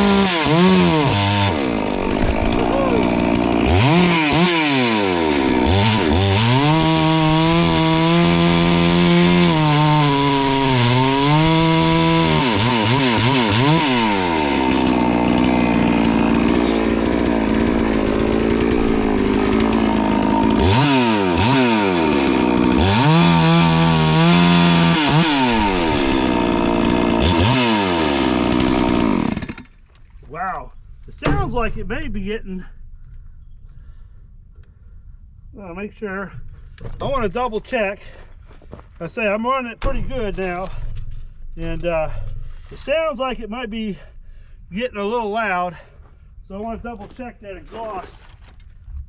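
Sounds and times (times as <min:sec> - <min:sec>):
chainsaw revving: 0:00.0 - 0:29.7
chainsaw cutting log: 0:00.0 - 0:29.8.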